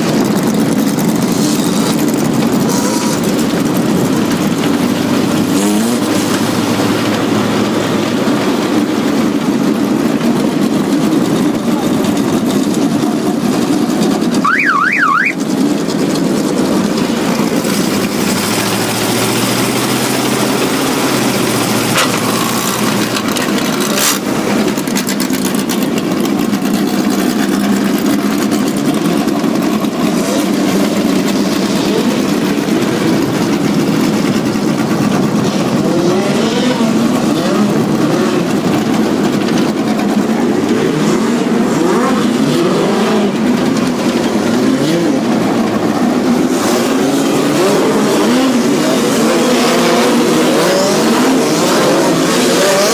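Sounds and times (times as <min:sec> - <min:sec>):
race car engines: 0:00.0 - 0:52.9
warbling tone: 0:14.4 - 0:15.4.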